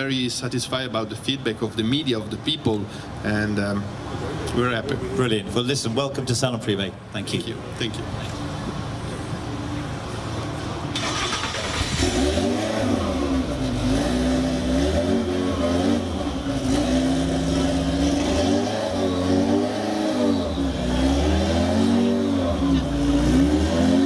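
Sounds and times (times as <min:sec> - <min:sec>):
car engine revving: 0:10.9 - 0:24.0.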